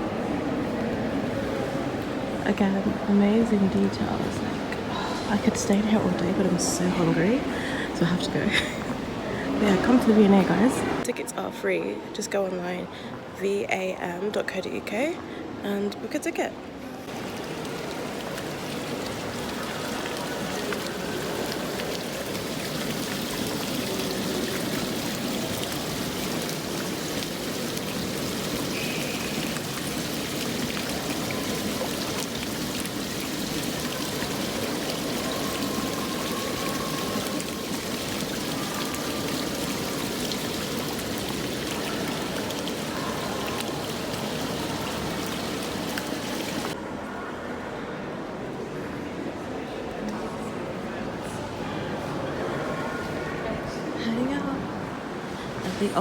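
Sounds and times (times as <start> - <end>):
running water: 0.0 - 11.2, 17.0 - 46.8.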